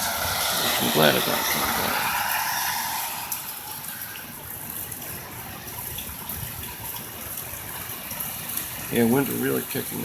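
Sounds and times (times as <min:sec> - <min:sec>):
gusty wind: 0:00.0 - 0:07.2
heavy rain pouring: 0:00.0 - 0:10.0.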